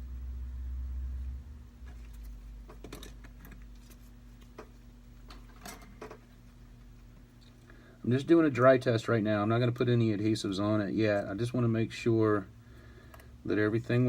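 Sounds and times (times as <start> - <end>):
low hum: 0.0 - 8.8
small parts clicking and tapping: 1.8 - 6.2, 13.1 - 13.3.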